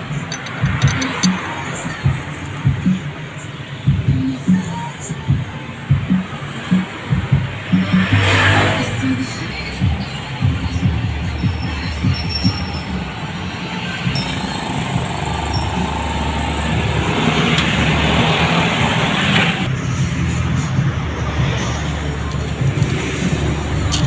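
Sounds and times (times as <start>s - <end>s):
motorcycle engine running: 14.2s - 19.7s.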